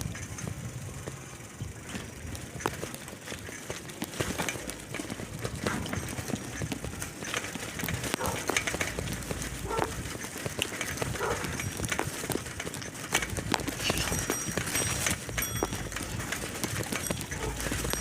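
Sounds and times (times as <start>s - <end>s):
bicycle rattling: 0.0s - 18.0s
wind rumble on microphone: 0.0s - 18.0s.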